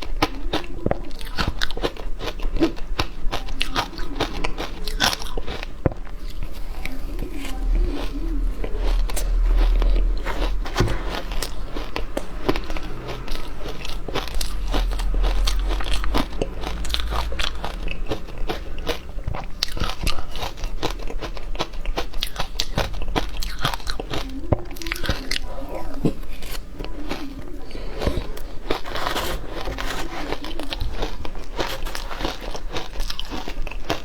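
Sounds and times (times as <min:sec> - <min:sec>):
ice crunching while chewed: 0:00.0 - 0:34.0
low rumble: 0:03.9 - 0:25.0.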